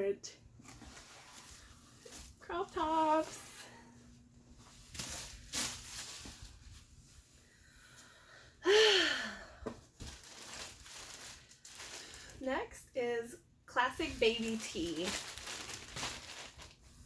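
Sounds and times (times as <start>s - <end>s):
clothes rustling: 0.6s - 7.4s, 14.0s - 17.0s
breathy sigh: 8.0s - 9.8s.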